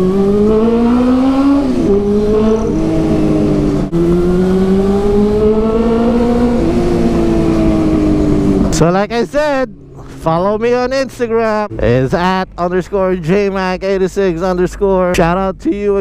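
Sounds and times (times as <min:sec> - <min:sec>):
motorcycle engine accelerating: 0:00.0 - 0:12.3.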